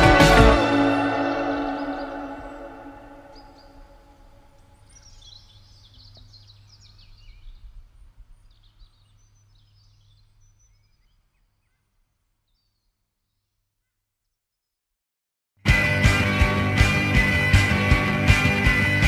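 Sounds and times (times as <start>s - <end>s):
birds chirping: 0.0s - 14.4s.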